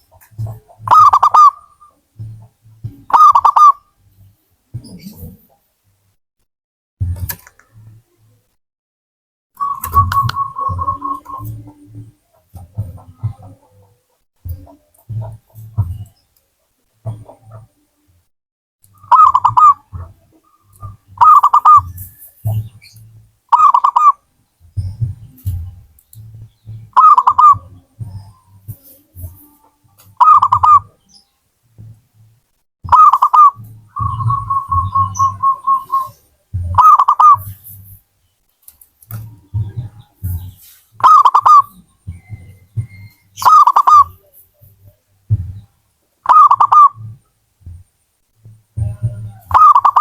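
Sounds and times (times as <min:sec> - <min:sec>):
soft low muffled thumps: 0:00.0 - 0:01.1, 0:02.0 - 0:03.2, 0:07.0 - 0:08.5, 0:09.7 - 0:16.3, 0:16.9 - 0:18.3, 0:19.2 - 0:23.5, 0:24.5 - 0:38.1, 0:39.0 - 0:45.9, 0:47.0 - 0:49.6
dove cooing: 0:00.0 - 0:03.9, 0:09.6 - 0:16.1, 0:19.0 - 0:22.9, 0:23.5 - 0:24.2, 0:26.5 - 0:31.0, 0:32.9 - 0:38.0, 0:39.2 - 0:45.6, 0:46.2 - 0:47.2, 0:48.8 - 0:50.0.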